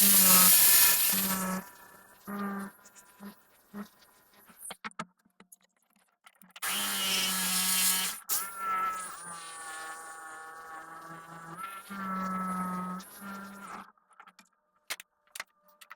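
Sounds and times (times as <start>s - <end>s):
power tool motor buzzing: 0.0s - 4.6s, 6.6s - 13.8s.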